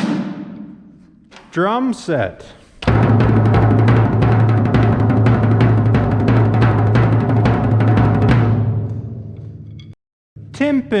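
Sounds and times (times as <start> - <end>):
fast drum roll on low drum: 2.9 - 8.8.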